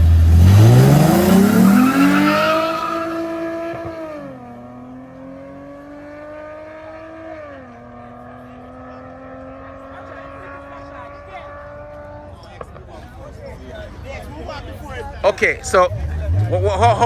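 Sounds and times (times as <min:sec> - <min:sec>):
drag race car accelerating: 0:00.0 - 0:12.8, 0:15.6 - 0:17.0.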